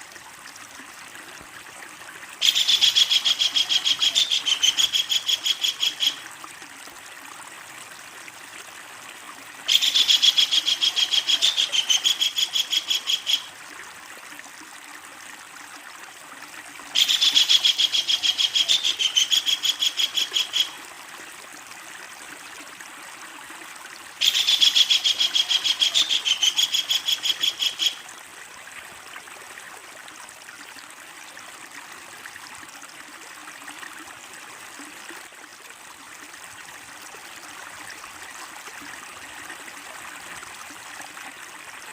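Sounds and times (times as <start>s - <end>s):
running water: 0.0s - 41.9s
kingfisher cackling calls: 2.4s - 6.2s, 9.7s - 13.5s, 17.0s - 20.8s, 24.2s - 28.0s.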